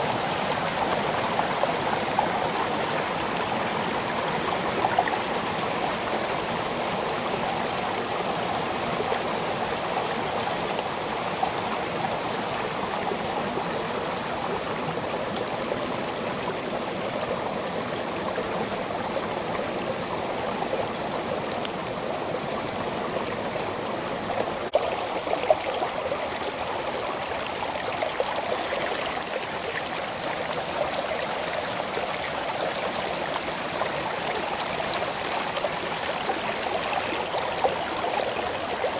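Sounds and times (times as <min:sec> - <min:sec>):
creek water over rocks: 0:00.0 - 0:38.9.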